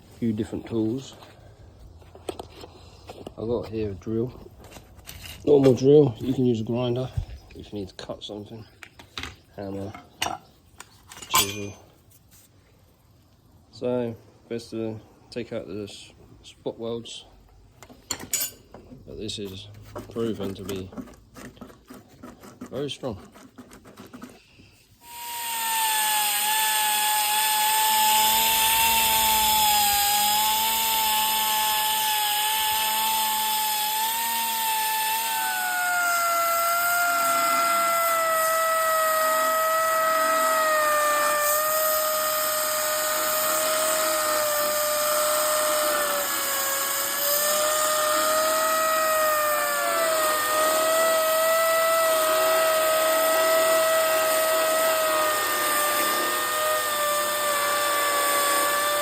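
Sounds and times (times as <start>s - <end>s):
electric drill whining: 25.0s - 59.0s.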